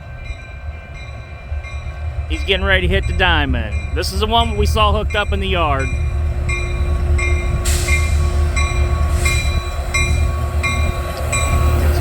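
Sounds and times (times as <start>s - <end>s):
diesel locomotives rumbling past: 0.0s - 12.0s
train hum: 0.0s - 12.0s.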